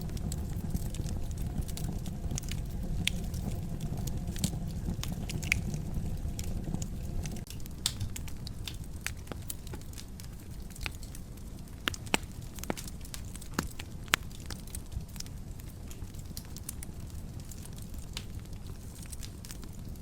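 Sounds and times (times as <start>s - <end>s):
low rumble: 0.0s - 8.6s
wood fire crackling and popping: 0.0s - 20.0s.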